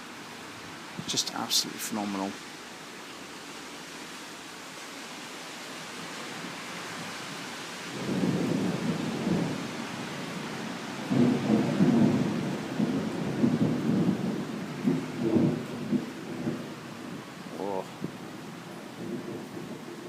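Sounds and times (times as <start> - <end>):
heavy rain: 0.0 - 20.0
thunder rumbling: 7.9 - 20.0.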